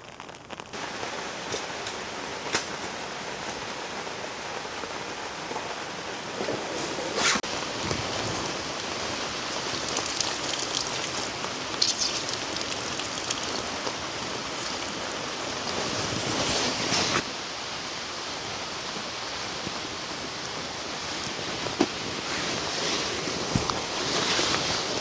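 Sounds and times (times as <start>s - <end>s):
heavy rain: 7.4s - 21.6s.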